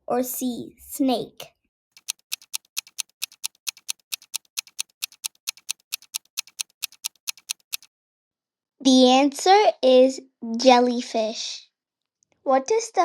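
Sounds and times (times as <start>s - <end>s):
clock ticking quickly: 1.9s - 7.9s.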